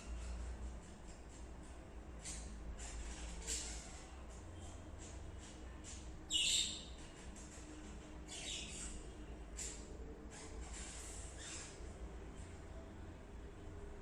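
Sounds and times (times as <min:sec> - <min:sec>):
budgerigar chirping: 0:06.3 - 0:06.9.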